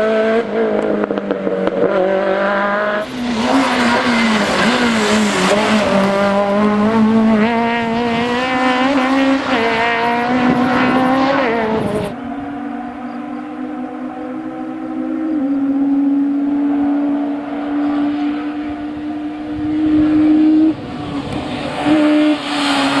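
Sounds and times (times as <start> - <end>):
rally car engine revving hard: 0.0 - 23.0
tyre noise: 0.7 - 13.2.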